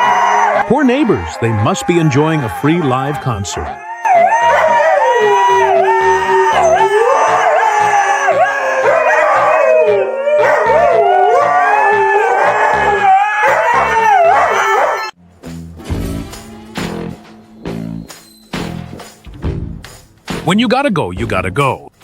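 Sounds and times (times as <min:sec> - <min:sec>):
dog howling: 0:00.0 - 0:15.2.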